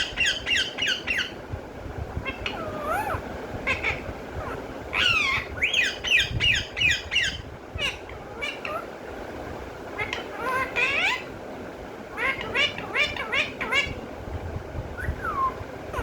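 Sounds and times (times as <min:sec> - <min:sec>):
parrot squawking and chattering: 0:00.0 - 0:01.4, 0:02.2 - 0:09.0, 0:10.0 - 0:11.3, 0:12.1 - 0:14.1, 0:15.0 - 0:16.0.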